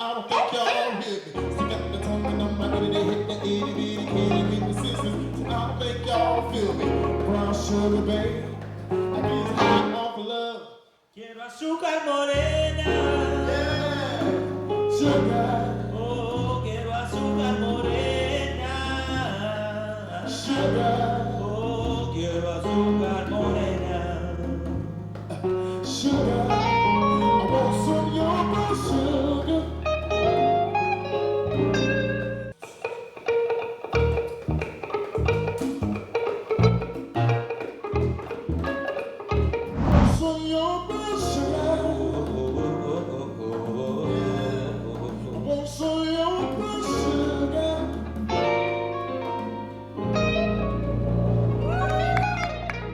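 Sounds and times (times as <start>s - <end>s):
person singing: 0.0s - 10.6s, 11.8s - 31.7s, 39.7s - 52.9s
guitar melody: 0.6s - 10.1s, 20.6s - 45.1s, 46.2s - 52.9s
bass notes: 1.4s - 9.9s, 12.4s - 32.6s, 34.0s - 52.9s
sharp hit: 39.6s - 40.3s.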